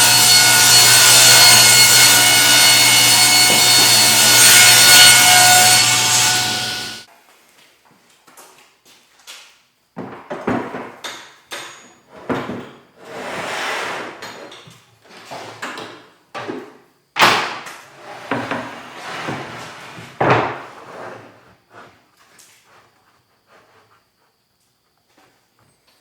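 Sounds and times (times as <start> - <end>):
wood sliding scrape: 0.3 - 7.0, 13.0 - 14.2, 18.0 - 22.0
wood knocking and clattering: 20.2 - 20.6.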